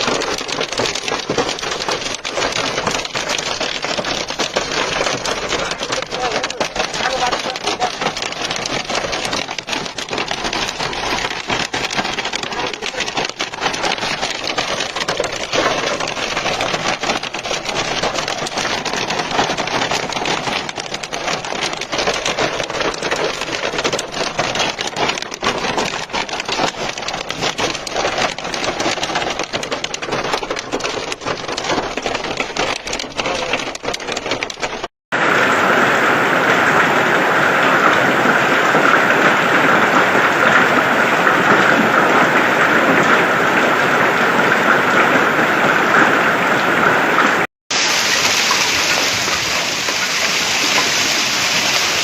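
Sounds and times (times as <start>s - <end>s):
hail clattering: 0.0s - 52.0s
downpour hiss: 47.8s - 52.0s.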